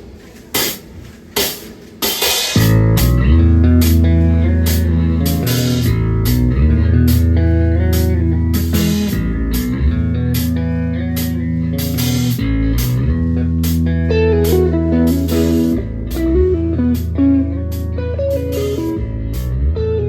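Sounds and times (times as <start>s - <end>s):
rock band playing: 1.4s - 20.0s
electric guitar: 2.5s - 20.0s
bass line: 2.6s - 20.0s
sharp percussion hits: 11.2s - 19.5s.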